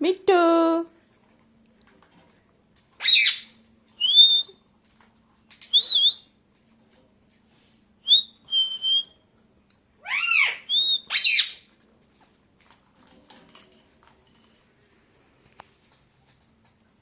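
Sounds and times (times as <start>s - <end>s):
parrot whistling calls: 3.0s - 4.6s, 5.7s - 6.3s, 10.0s - 11.7s.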